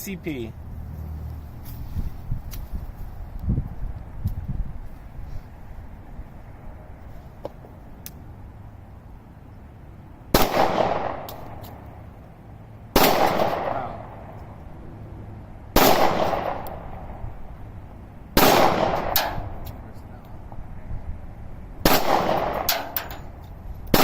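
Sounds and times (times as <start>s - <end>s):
pistol shots echoing: 10.4s - 11.6s, 13.0s - 14.3s, 15.8s - 17.1s, 18.4s - 19.5s, 21.8s - 23.0s.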